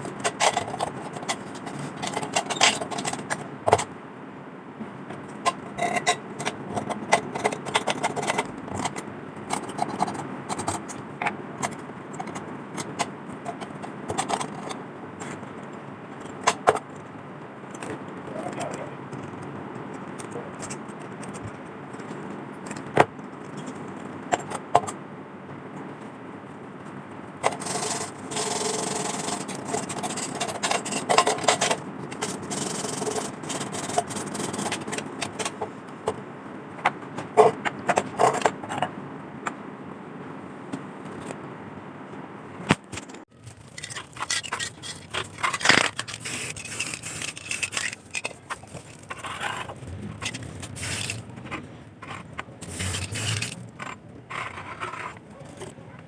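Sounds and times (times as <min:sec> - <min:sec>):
sandpaper scratching metal: 0:43.8 - 0:51.2, 0:52.1 - 0:53.8.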